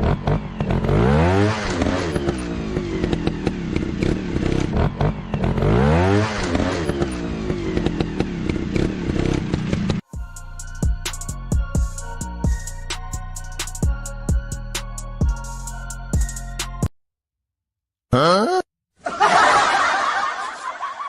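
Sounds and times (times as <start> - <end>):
motorcycle engine revving: 0.0 - 10.1
music with drum beat: 10.1 - 16.8.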